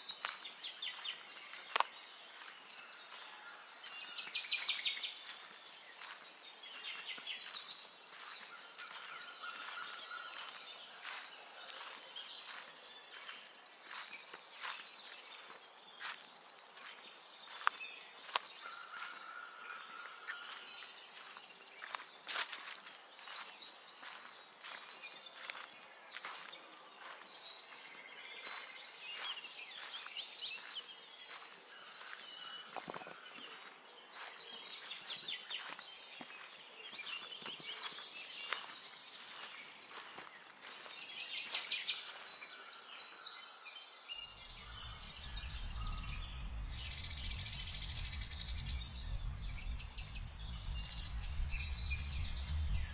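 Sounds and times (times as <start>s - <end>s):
songbirds chirping and trilling: 0.0s - 52.9s
low rumble: 44.5s - 52.9s.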